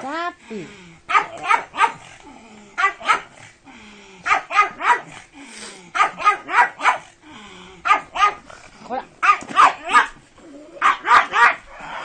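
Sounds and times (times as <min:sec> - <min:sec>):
dog barking: 0:01.1 - 0:02.1, 0:02.8 - 0:03.4, 0:04.2 - 0:05.2, 0:06.0 - 0:07.1, 0:07.8 - 0:08.4, 0:09.2 - 0:10.2, 0:10.8 - 0:11.6.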